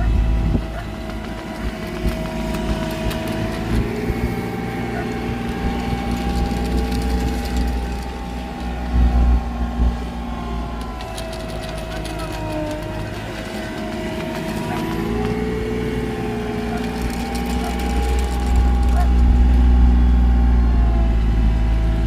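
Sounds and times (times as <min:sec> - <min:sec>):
heavy machinery engine running: 0:00.0 - 0:22.0.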